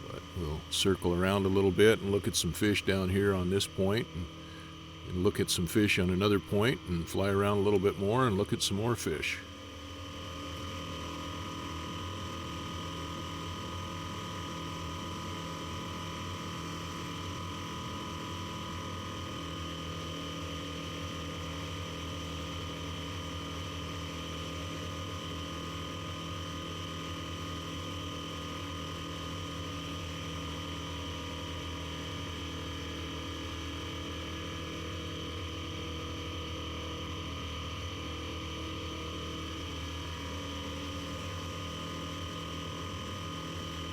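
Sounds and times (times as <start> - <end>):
airplane engine and propeller droning: 0.0 - 19.8.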